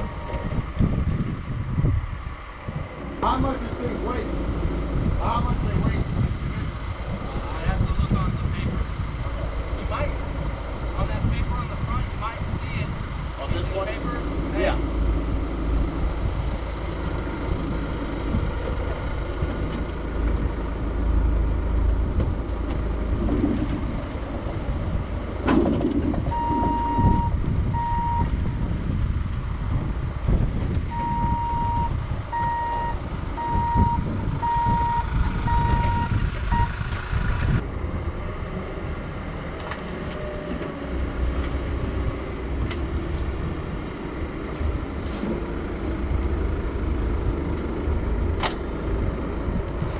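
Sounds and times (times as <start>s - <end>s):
heavy engine rumbling: 0.0s - 49.9s
vehicle backup alarm beeping: 26.3s - 28.4s, 30.9s - 36.8s.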